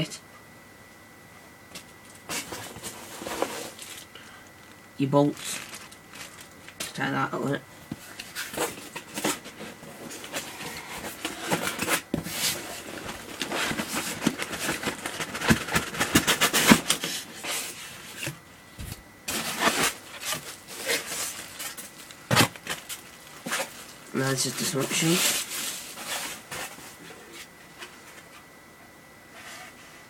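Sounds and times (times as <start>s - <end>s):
packaging rustling: 2.1s - 7.0s, 7.9s - 18.4s, 19.3s - 27.2s.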